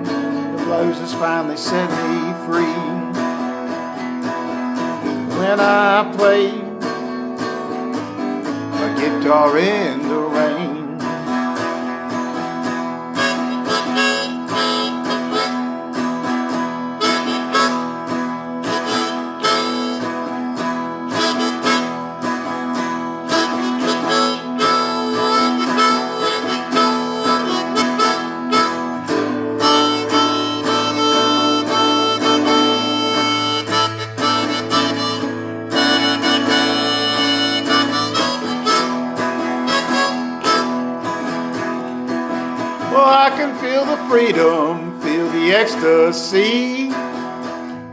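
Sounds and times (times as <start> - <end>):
guitar: 0.0 - 47.9
blues harmonica solo: 6.8 - 47.9.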